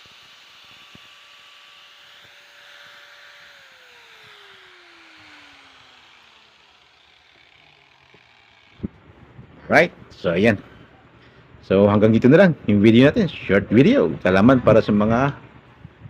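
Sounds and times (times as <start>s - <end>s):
electric hand grinder whining: 0.0s - 9.0s.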